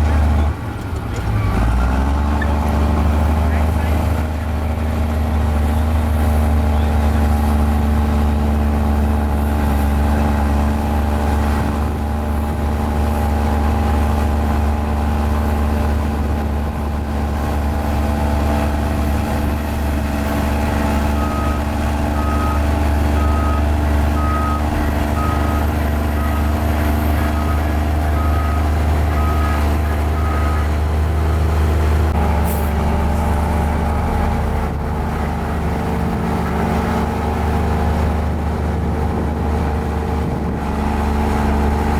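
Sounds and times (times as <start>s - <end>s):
diesel engine running: 0.0s - 41.9s
reversing alarm beeping: 21.0s - 30.7s.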